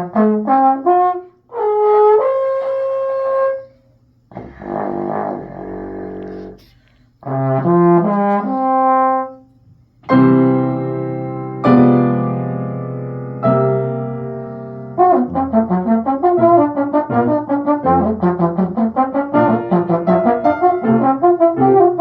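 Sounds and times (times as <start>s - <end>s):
low brass instrument playing: 0.0s - 3.7s, 4.3s - 9.4s, 14.4s - 22.0s.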